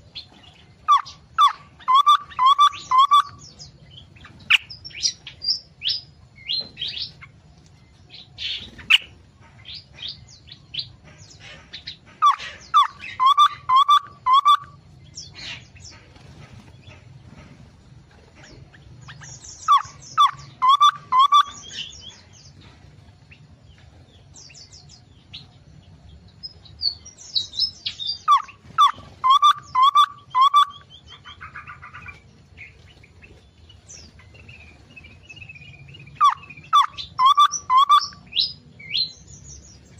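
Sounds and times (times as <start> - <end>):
songbirds chirping: 0.0 - 39.9
bird whistled notes: 0.9 - 3.5, 12.3 - 14.8, 19.6 - 21.9, 28.1 - 30.8, 35.4 - 38.6.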